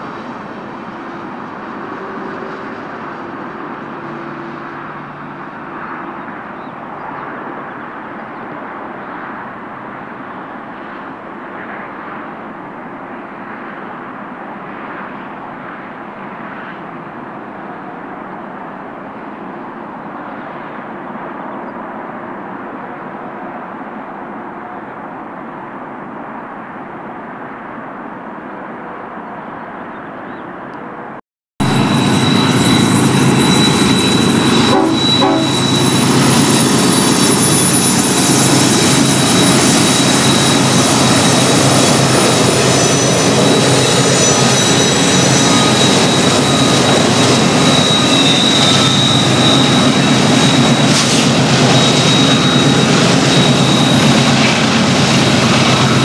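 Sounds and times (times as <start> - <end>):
dull train rumble: 0.0 - 12.7, 30.9 - 56.0
diesel freight train passing: 0.0 - 25.4, 30.6 - 56.0
high whine: 31.6 - 56.0.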